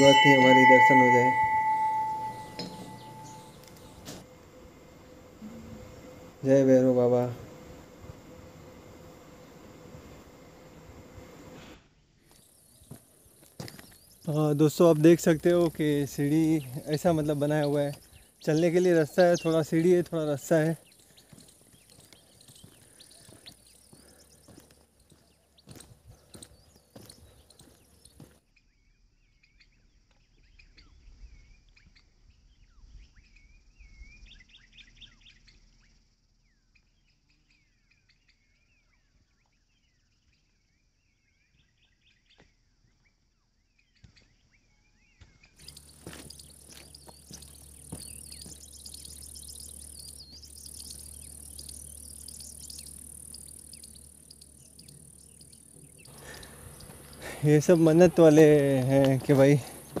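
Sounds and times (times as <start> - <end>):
birds chirping and trilling: 0.0 - 4.1, 12.4 - 32.0, 43.8 - 60.0.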